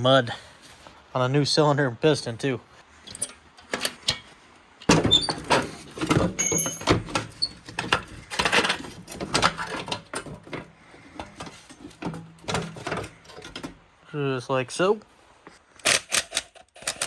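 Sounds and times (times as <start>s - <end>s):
tools clanking and rattling: 2.2s - 14.0s.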